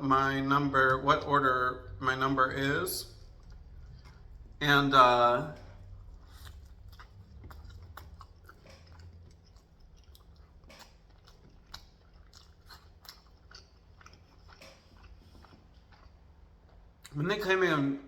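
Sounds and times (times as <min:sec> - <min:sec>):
chewing food: 0:00.8 - 0:17.4.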